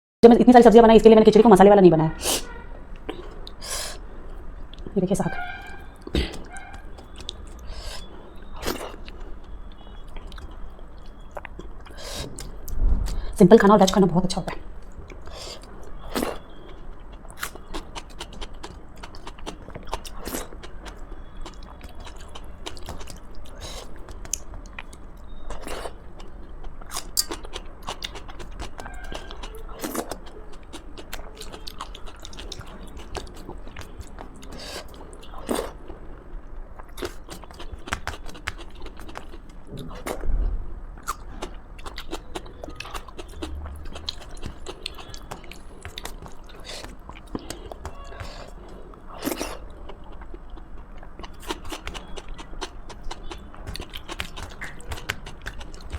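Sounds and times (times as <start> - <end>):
person chewing and biting: 6.1 - 12.7, 15.1 - 35.9, 36.8 - 40.2, 41.0 - 55.9
wet mouth clicks and smacks: 51.2 - 55.9.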